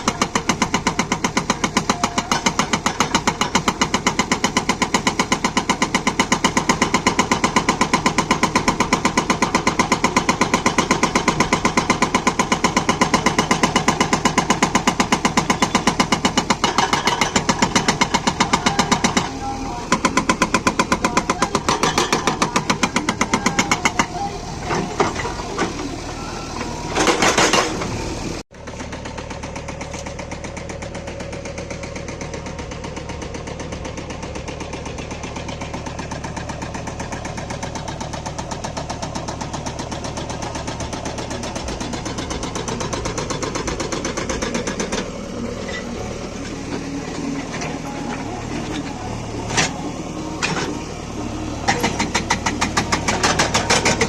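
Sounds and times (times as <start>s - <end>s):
hydraulic breaker hammering: 0.0s - 26.3s, 26.9s - 28.0s, 35.5s - 54.0s
diesel engine running: 0.0s - 54.0s.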